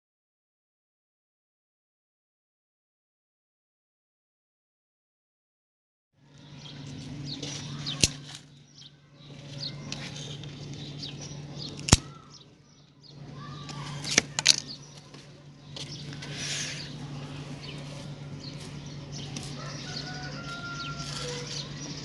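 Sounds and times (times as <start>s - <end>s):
birds chirping: 6.2s - 22.0s
low hum: 6.2s - 22.0s
sharp clicks: 11.7s - 12.2s.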